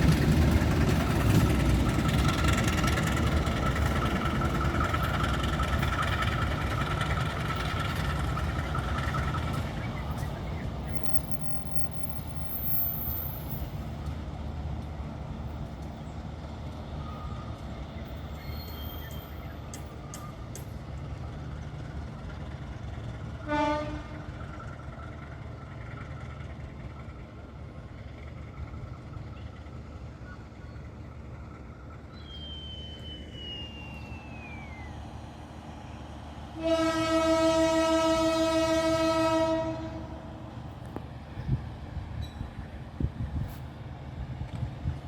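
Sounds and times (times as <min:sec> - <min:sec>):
diesel locomotive idling: 0:00.0 - 0:45.0
locomotive horn: 0:23.4 - 0:24.4, 0:36.5 - 0:40.5
faint falling whistle: 0:32.2 - 0:35.0.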